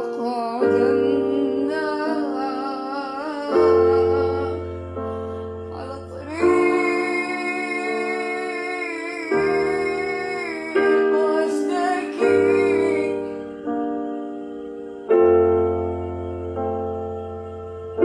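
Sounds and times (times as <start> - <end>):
woman singing: 0.0 - 13.6
piano chords: 0.0 - 18.0.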